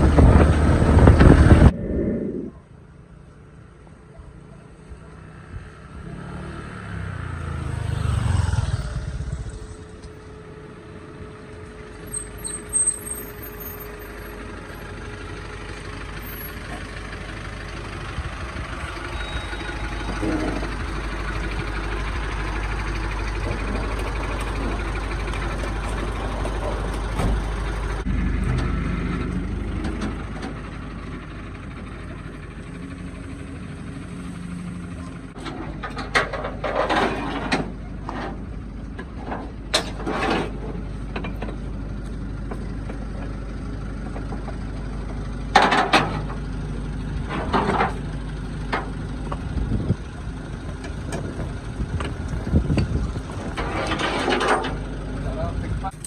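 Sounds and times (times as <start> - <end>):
vehicle passing by: 0.0 - 2.9, 5.1 - 10.1
low engine and road rumble: 0.0 - 56.0.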